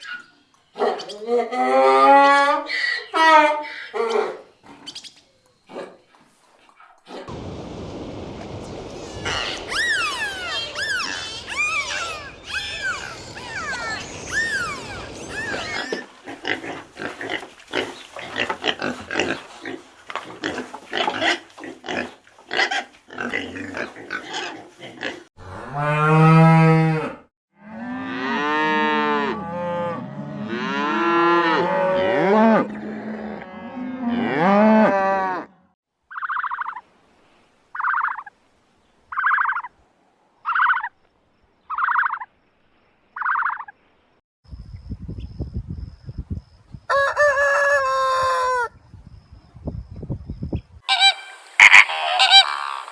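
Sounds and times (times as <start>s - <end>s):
rapid clicking and chirping: 8.7s - 15.8s
short repeated animal calls: 8.7s - 16.0s, 50.9s - 52.9s.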